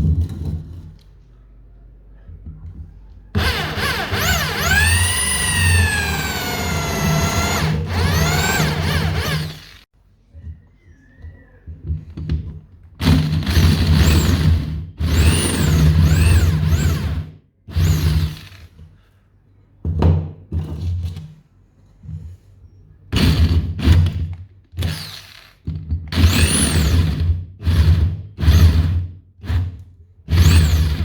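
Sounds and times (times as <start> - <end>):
power tool motor working wood: 3.4 - 9.9, 15.0 - 18.6, 26.2 - 28.9, 30.3 - 31.0.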